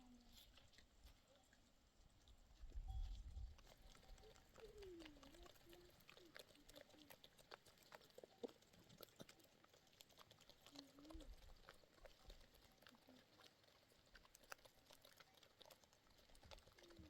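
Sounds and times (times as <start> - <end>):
faint clicks and ticks: 2.2 - 17.0.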